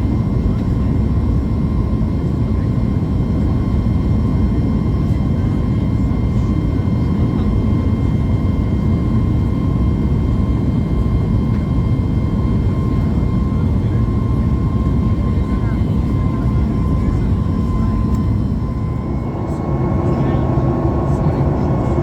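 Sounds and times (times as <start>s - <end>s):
airplane cabin rumble: 0.0s - 22.0s
faint steady whine: 12.3s - 22.0s.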